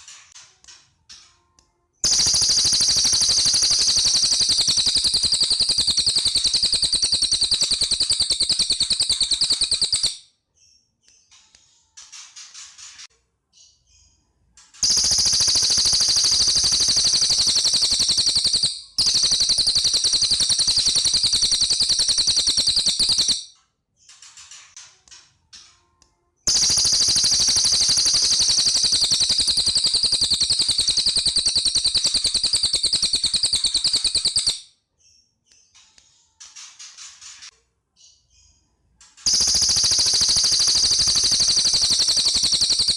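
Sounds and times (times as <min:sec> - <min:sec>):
faint bird chirps: 0:00.0 - 0:42.9
songbird rapid trills: 0:39.3 - 0:42.9.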